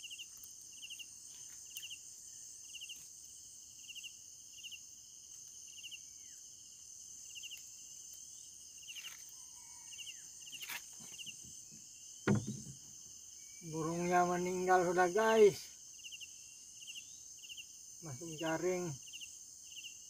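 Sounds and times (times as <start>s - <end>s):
high insect drone: 0.0s - 20.0s
insects chirping in pulsed trills: 0.0s - 20.0s
sharp thump: 12.2s - 12.9s.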